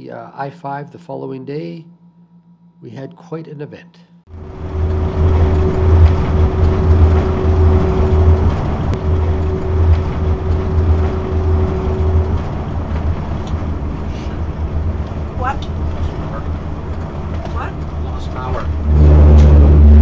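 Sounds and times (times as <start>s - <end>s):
steady hum: 0.0s - 20.0s
road and engine rumble: 4.3s - 20.0s.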